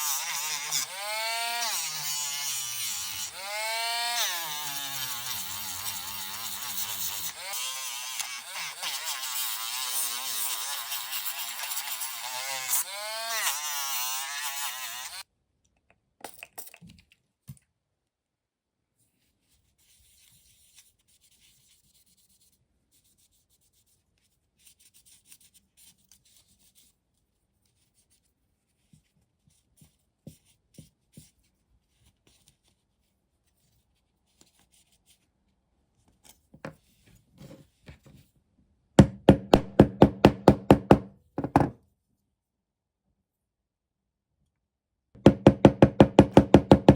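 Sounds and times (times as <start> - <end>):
loud knocks: 39.0 - 41.8, 45.2 - 46.9.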